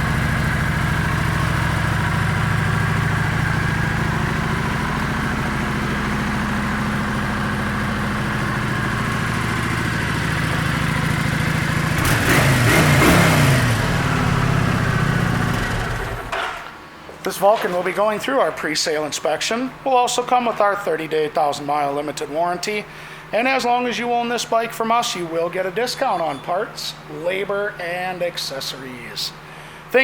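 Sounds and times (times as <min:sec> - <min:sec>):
motorcycle engine idling: 0:00.0 - 0:16.5.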